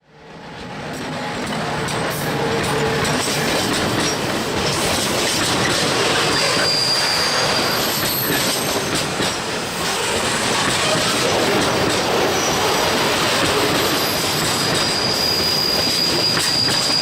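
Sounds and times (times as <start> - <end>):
train wheels rattling on rails: 0.5 - 17.0
high wheel squeal: 5.4 - 17.0.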